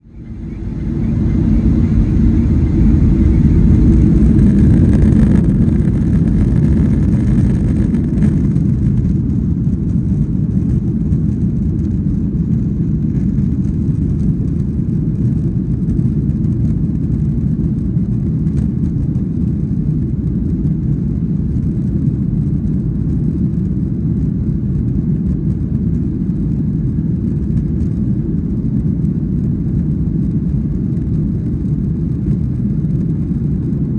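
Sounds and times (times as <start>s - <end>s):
high engine whine: 0.0s - 6.5s
airliner engines rumbling: 0.0s - 11.4s, 24.4s - 33.9s.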